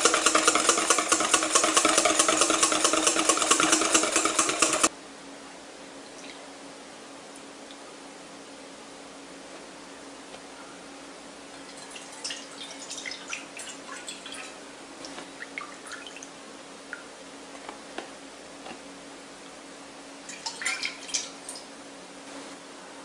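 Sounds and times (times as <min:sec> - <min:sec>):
milk splashing into a metal bowl: 0:20.3 - 0:21.6.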